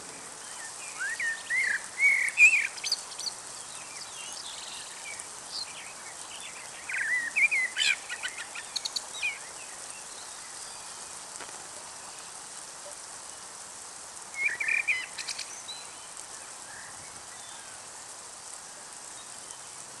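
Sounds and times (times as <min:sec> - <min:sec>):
songbirds chirping and trilling: 0:00.0 - 0:12.5
steady background hiss: 0:00.0 - 0:20.0.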